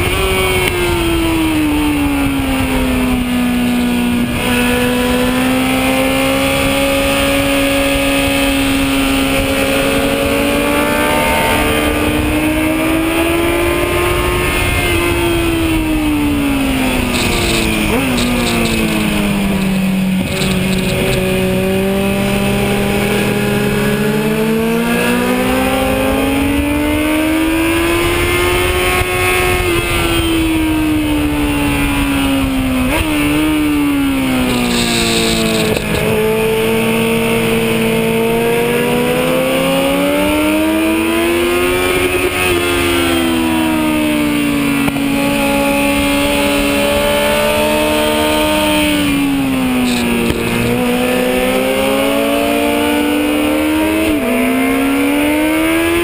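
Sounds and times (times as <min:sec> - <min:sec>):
wind noise: 0:00.0 - 0:54.4
motorcycle engine revving: 0:00.0 - 0:56.0.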